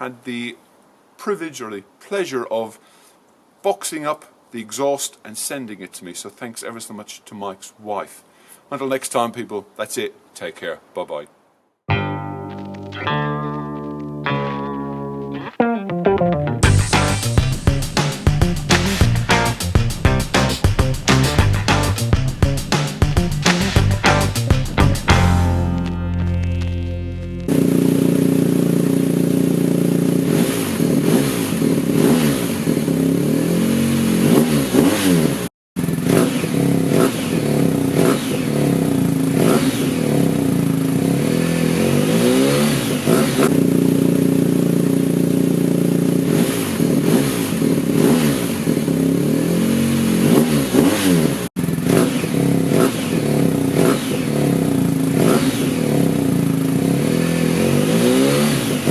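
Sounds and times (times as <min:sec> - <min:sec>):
motorcycle engine running: 0:16.6 - 0:33.3, 0:43.5 - 0:58.9.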